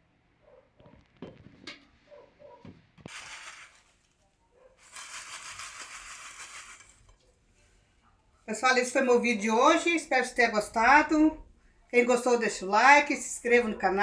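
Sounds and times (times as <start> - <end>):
dough tossed in sugar rustling: 3.1 - 4.2.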